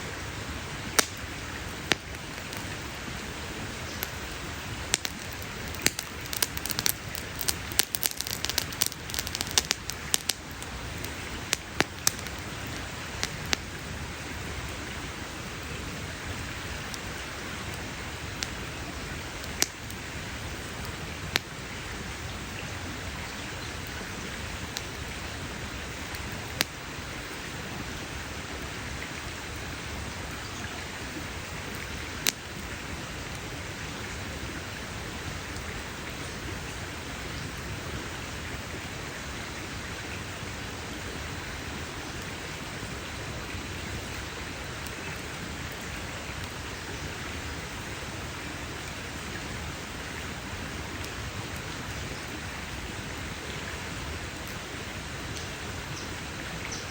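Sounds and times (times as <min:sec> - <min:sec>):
campfire crackling: 0:00.0 - 0:56.9
wood popping: 0:01.0 - 0:01.2, 0:04.8 - 0:13.6.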